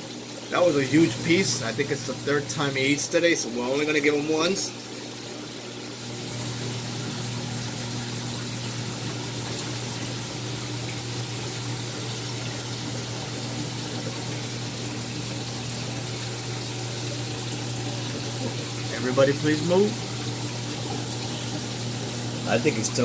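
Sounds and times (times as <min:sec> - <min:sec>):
low pump hum: 0:00.0 - 0:23.0
water circulating: 0:00.0 - 0:23.0.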